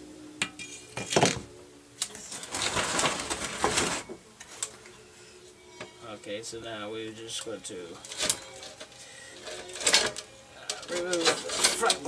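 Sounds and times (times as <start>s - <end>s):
scraping rattle: 8.1s - 12.0s.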